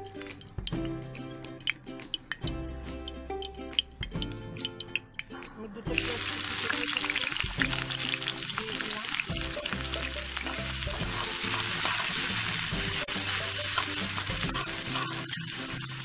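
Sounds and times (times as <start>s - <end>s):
onions sizzling in hot oil: 6.0s - 16.0s
metal spatula scraping pan: 10.4s - 16.0s.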